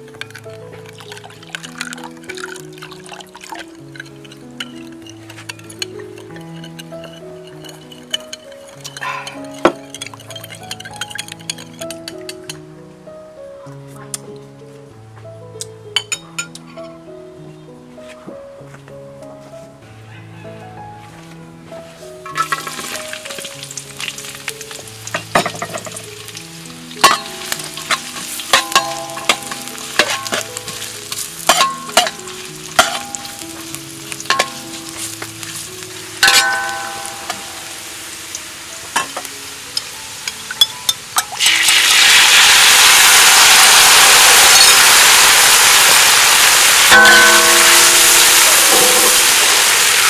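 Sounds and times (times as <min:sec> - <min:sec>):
shallots sizzling in hot oil: 0:00.0 - 0:12.6, 0:21.9 - 0:50.0
loud sauce sizzle: 0:00.0 - 0:12.8, 0:21.9 - 0:50.0
soft background music: 0:00.0 - 0:50.0
metal spatula scraping a wok: 0:03.8 - 0:12.1, 0:27.0 - 0:37.8.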